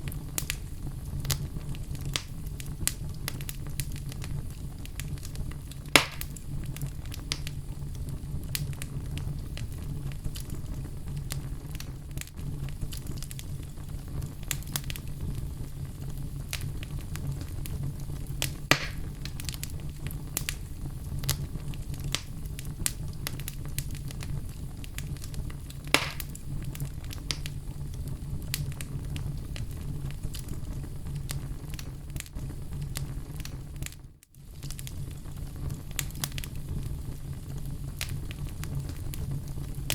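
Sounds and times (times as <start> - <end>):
sharp pops of burning logs: 0.0 - 7.6, 9.6 - 15.5, 16.4 - 30.6, 35.6 - 36.8, 37.9 - 39.9
fire crackling: 0.0 - 39.9
low rumble of flames: 0.0 - 39.9.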